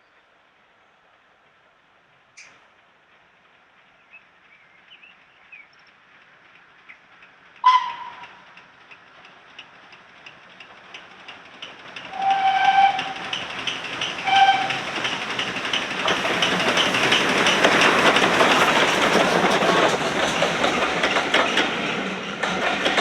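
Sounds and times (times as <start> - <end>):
steam train hissing and beating: 6.0 - 23.0
steam whistle: 7.6 - 8.2, 12.1 - 13.2, 14.3 - 14.8.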